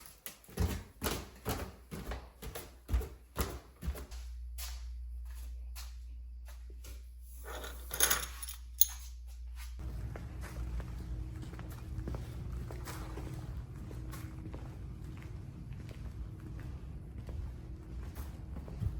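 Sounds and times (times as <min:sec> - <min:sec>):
steady low hum: 0:03.9 - 0:18.9.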